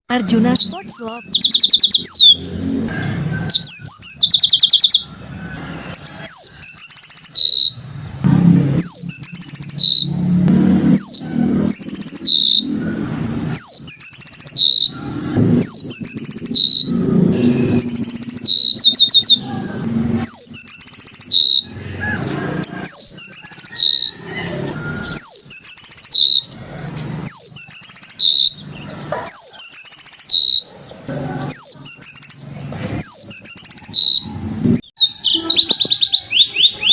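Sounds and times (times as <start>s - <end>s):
canary chirping: 0.1s - 2.8s, 3.4s - 36.9s
steady high whistling note: 6.8s - 25.1s.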